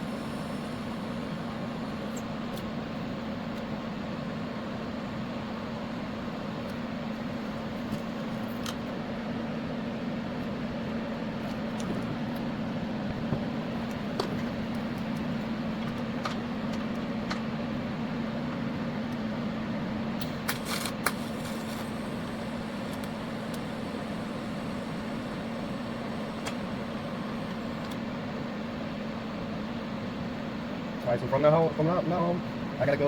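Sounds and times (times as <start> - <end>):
welder humming and hissing: 0.0 - 7.9, 20.2 - 32.4.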